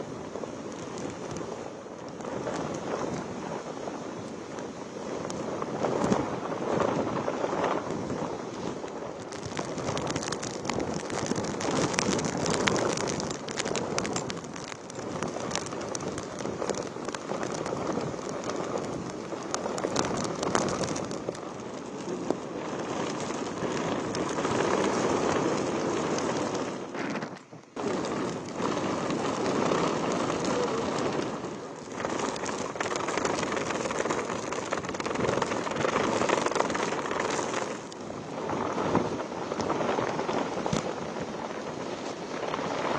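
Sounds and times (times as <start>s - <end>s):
heavy rain with gusting wind: 0.0s - 42.9s
raindrop ticks: 0.5s - 42.9s.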